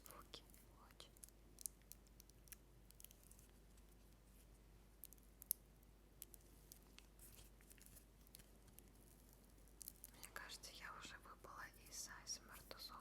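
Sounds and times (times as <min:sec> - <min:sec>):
faint small clicks: 0:05.0 - 0:05.6, 0:06.2 - 0:10.4.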